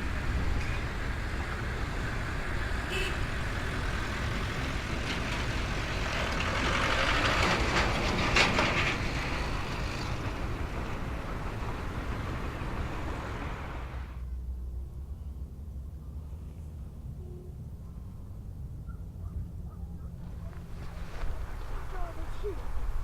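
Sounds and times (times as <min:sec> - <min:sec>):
train passing: 0:00.0 - 0:15.2, 0:16.3 - 0:23.0.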